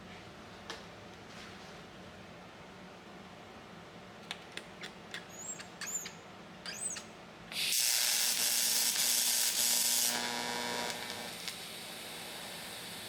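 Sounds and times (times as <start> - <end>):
light clicks and squeaks: 4.6 - 7.1.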